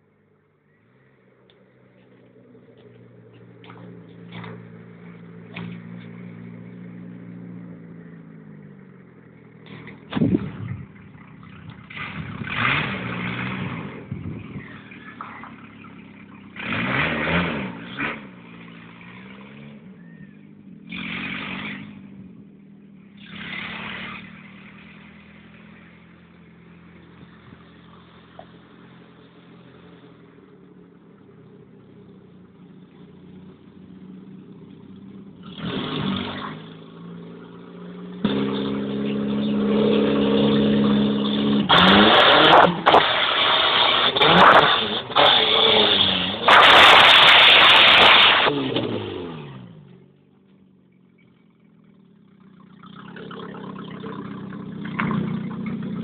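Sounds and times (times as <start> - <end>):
engine revving without exhaust: 3.3 - 30.4, 33.9 - 50.2, 52.6 - 56.0
engine backfire bang: 9.6 - 11.2, 41.5 - 49.6.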